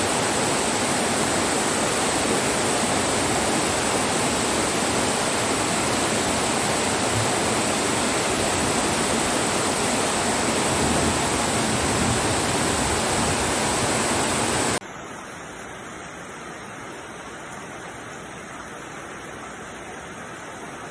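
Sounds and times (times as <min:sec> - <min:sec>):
rain hiss: 0:00.0 - 0:14.8
rushing floodwater roar: 0:00.0 - 0:14.8.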